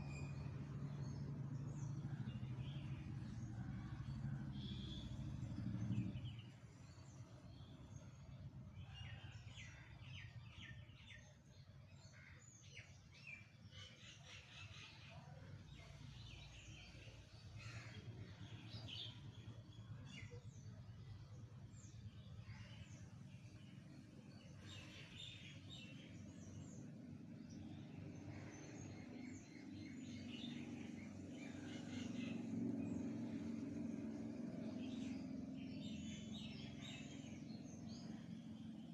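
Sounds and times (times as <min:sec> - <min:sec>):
small birds chirping: 0:12.2 - 0:38.9.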